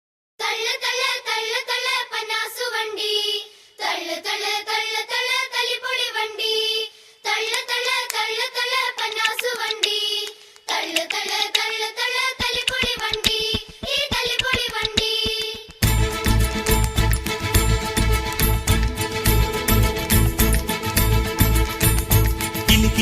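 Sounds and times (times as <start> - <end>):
high voice singing: 8.9 - 15.8.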